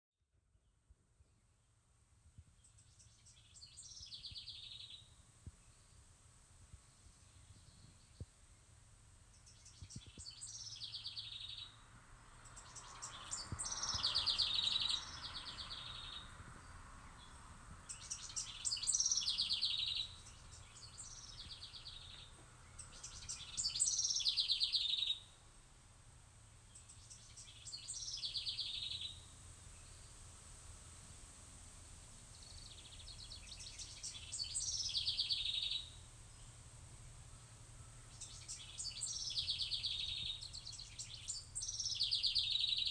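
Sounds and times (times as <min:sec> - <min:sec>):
songbird trilling: 0:09.4 - 0:11.8, 0:12.4 - 0:16.3, 0:17.9 - 0:25.3, 0:26.7 - 0:29.2, 0:32.4 - 0:36.0, 0:37.8 - 0:42.9.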